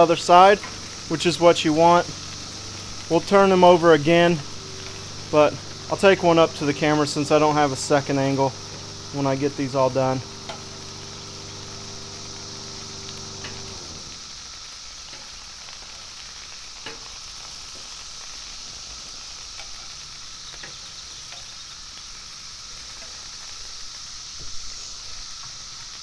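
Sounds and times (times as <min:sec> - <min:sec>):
low steady hum: 0:00.0 - 0:14.3
chicken sizzling on a griddle: 0:00.0 - 0:26.0
cicadas droning: 0:00.0 - 0:26.0
tongs clicking on a griddle: 0:10.4 - 0:10.8, 0:16.8 - 0:17.1, 0:19.6 - 0:21.6, 0:22.9 - 0:23.2.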